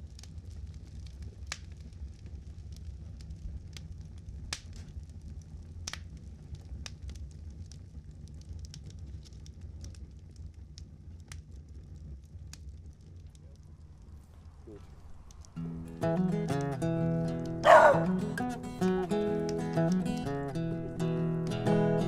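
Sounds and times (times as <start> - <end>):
campfire crackling and popping: 0.0 - 22.0
low rumble: 12.6 - 16.0.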